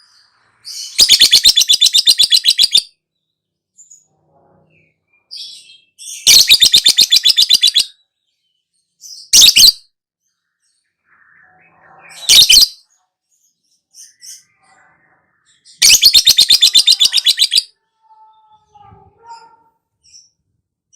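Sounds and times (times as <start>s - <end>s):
lovebird chattering trills: 6.3s - 7.9s, 15.8s - 17.7s.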